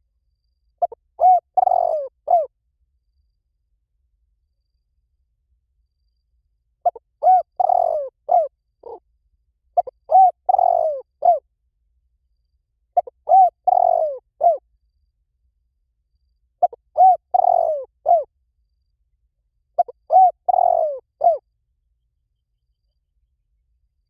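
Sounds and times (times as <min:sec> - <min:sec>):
dove cooing: 0:00.8 - 0:02.5, 0:06.8 - 0:09.0, 0:09.8 - 0:11.4, 0:13.0 - 0:14.6, 0:16.6 - 0:18.3, 0:19.8 - 0:21.4.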